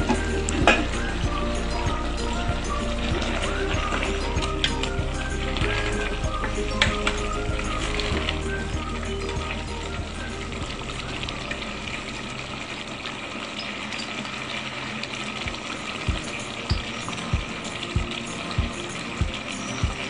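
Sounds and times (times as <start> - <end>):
chicken sizzling in a pot: 0.0 - 20.0.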